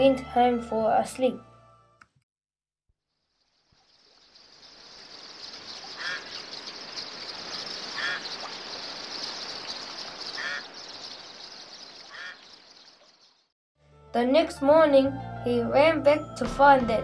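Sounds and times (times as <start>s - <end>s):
steady high hiss: 4.0s - 12.2s
bird squawking: 5.7s - 9.0s, 9.6s - 11.2s, 11.9s - 12.6s.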